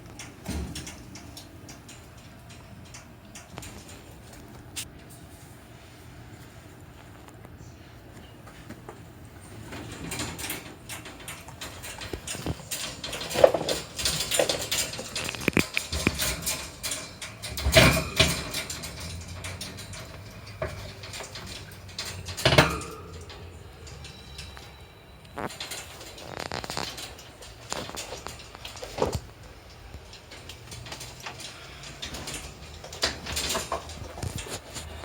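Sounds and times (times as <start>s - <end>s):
rustling: 8.6s - 35.0s.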